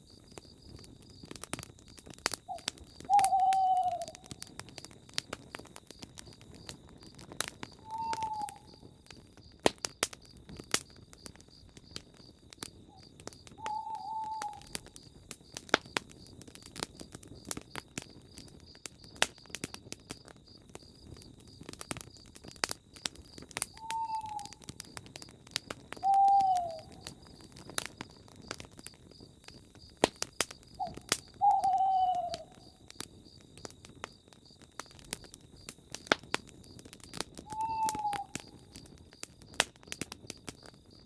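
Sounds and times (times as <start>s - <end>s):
campfire crackling and popping: 0.0s - 41.0s
owl hooting: 2.5s - 4.3s, 7.8s - 8.8s, 13.6s - 14.7s, 23.8s - 24.6s, 26.0s - 27.0s, 30.8s - 32.8s, 37.5s - 38.7s.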